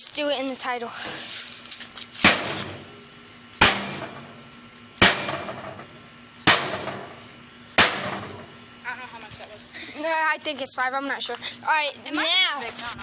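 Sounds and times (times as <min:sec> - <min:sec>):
tool banging metal casing: 0:02.2 - 0:02.9, 0:05.0 - 0:05.9, 0:06.5 - 0:07.2, 0:07.8 - 0:08.5.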